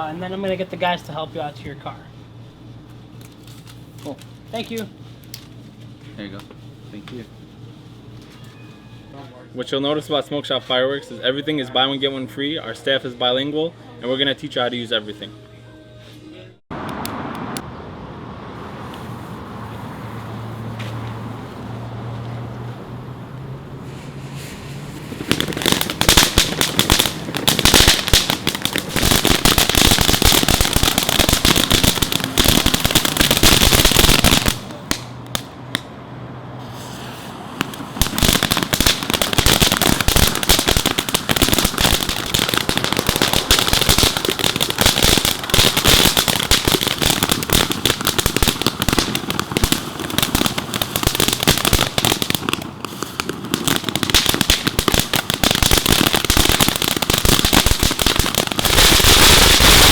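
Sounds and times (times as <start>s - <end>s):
fireworks crackling and banging: 23.8s - 35.9s, 36.6s - 59.9s.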